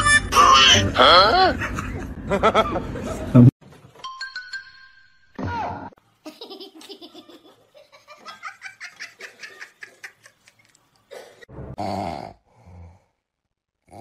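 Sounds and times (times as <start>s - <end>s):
people laughing: 1.4s - 3.4s, 6.3s - 10.8s.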